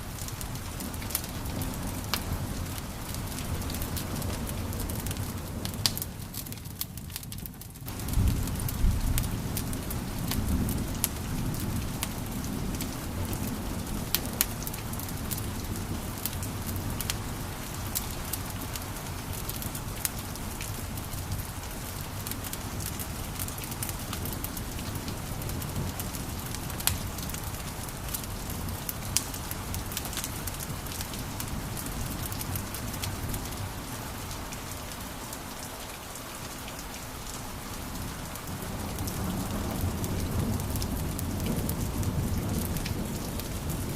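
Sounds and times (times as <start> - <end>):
wood fire crackling and popping: 0.1 - 35.1.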